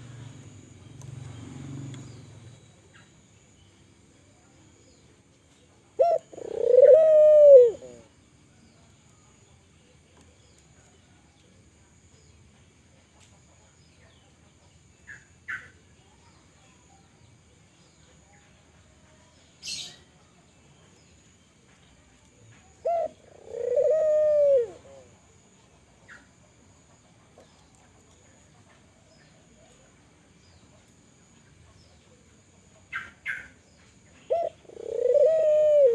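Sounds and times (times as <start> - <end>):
dove cooing: 6.0 - 8.1, 22.8 - 25.2, 34.3 - 35.9.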